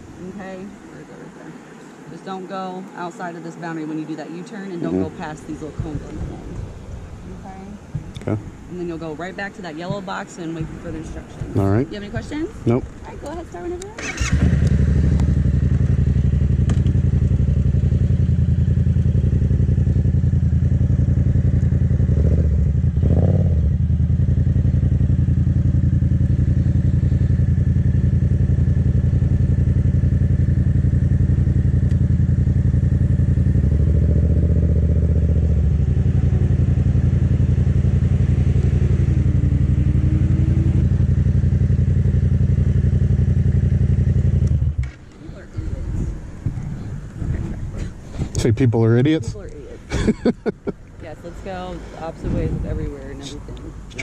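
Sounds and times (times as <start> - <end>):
motorcycle engine running: 4.9 - 54.0.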